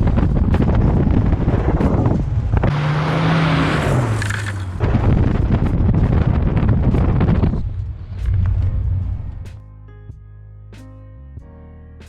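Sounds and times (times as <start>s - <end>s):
car rumble and buffeting: 0.0s - 9.6s.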